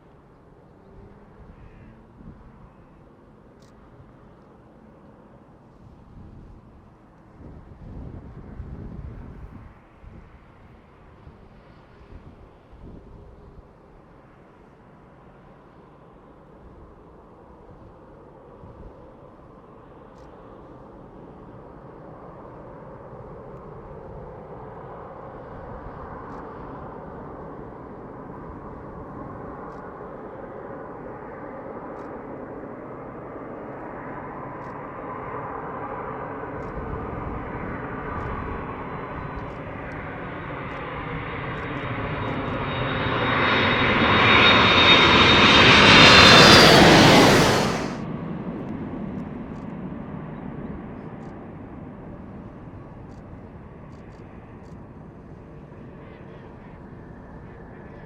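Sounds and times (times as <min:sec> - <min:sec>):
airliner turbofan engines rumbling: 0:19.3 - 0:58.0
high steady jet whine: 0:38.4 - 0:48.2.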